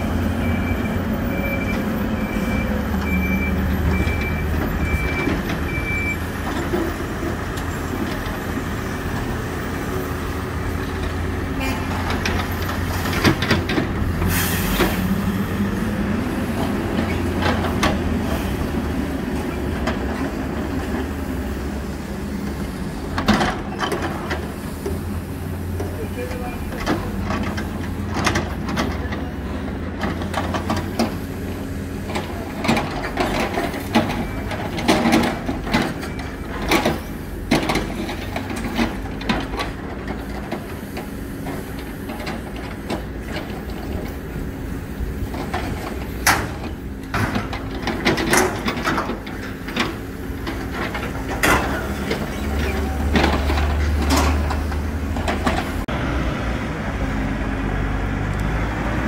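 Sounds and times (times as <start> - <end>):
diesel engine running: 0.0 - 59.0
machine knocks and clanks: 45.2 - 55.8.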